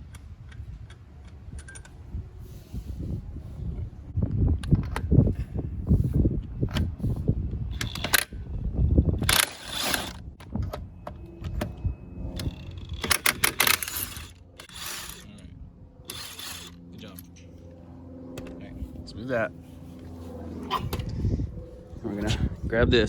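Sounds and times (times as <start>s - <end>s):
low rumbling handling noise: 0.0s - 23.0s
rattly bursts: 7.7s - 8.4s, 9.2s - 10.5s, 12.3s - 17.4s
car wheel pulled off hub: 12.4s - 15.3s, 16.1s - 16.8s.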